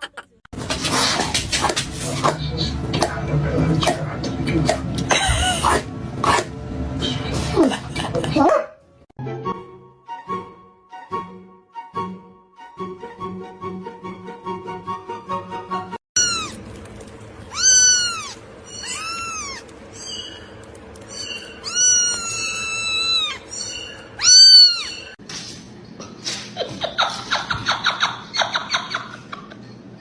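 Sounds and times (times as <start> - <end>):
cat meowing: 16.2 - 16.6, 17.5 - 19.7, 21.6 - 25.2.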